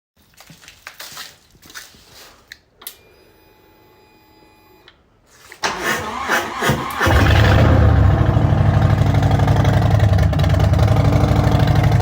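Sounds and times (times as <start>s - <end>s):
motorcycle engine starting: 5.6s - 12.0s.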